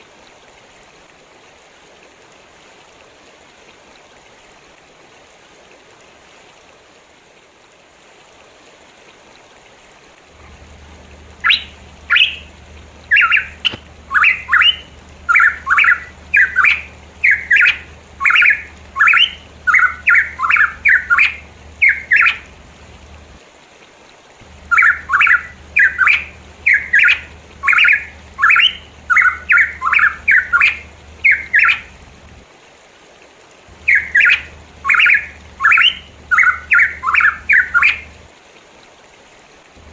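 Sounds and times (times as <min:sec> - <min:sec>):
low steady hum: 0:08.3 - 0:23.4, 0:24.4 - 0:32.5, 0:33.7 - 0:38.4
faint rushing: 0:09.4 - 0:23.4
bird calling loud sliding notes: 0:10.4 - 0:23.2, 0:24.4 - 0:32.2, 0:33.7 - 0:38.2.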